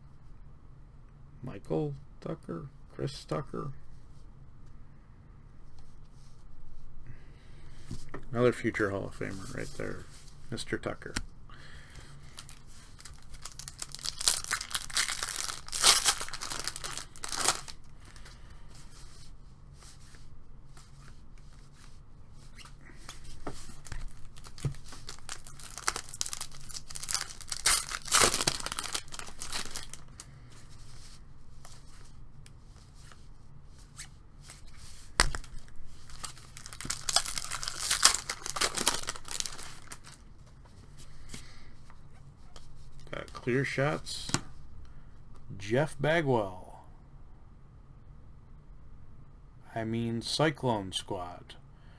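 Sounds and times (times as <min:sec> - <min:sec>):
card handling: 0:09.2 - 0:18.4, 0:22.9 - 0:32.1, 0:34.7 - 0:40.6
wrapper tearing and crinkling: 0:12.3 - 0:18.3, 0:23.3 - 0:30.3, 0:35.1 - 0:40.2.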